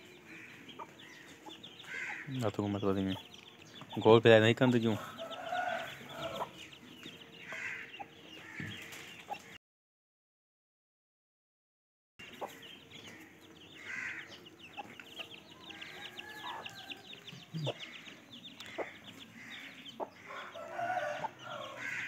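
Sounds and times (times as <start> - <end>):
birds chattering: 0.0 - 9.6, 12.2 - 22.0.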